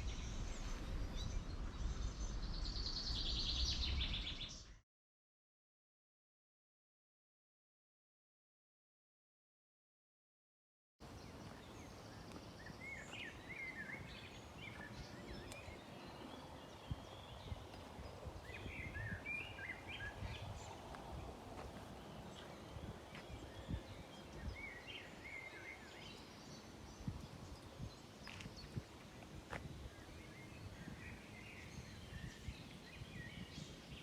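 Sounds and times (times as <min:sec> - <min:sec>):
small birds chirping: 0:00.0 - 0:04.8, 0:11.0 - 0:34.0
outdoor background hiss: 0:11.0 - 0:34.0.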